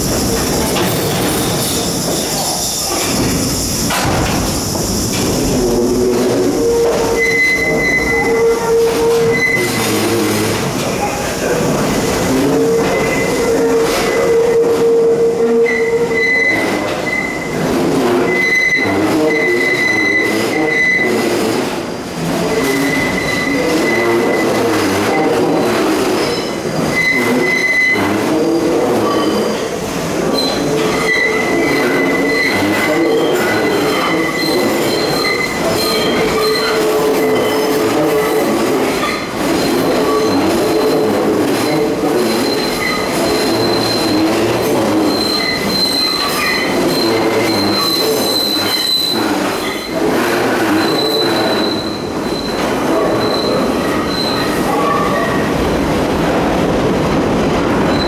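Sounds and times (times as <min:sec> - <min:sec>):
train wheels squealing on curve: 0:00.0 - 0:10.7, 0:12.0 - 0:55.5
rumble of train cars: 0:00.0 - 0:58.0.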